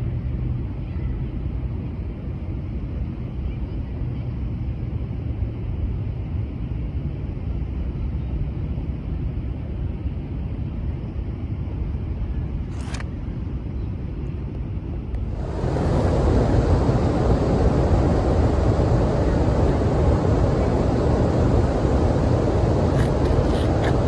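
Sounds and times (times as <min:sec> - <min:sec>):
low rumbling outdoor background noise: 0:00.0 - 0:24.0.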